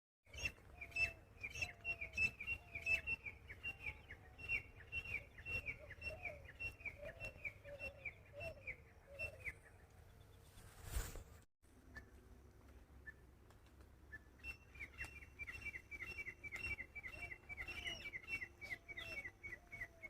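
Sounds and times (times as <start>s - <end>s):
bird chirping: 0.3s - 11.1s, 14.0s - 20.0s
faint low bird calls: 0.3s - 13.4s, 14.0s - 20.0s.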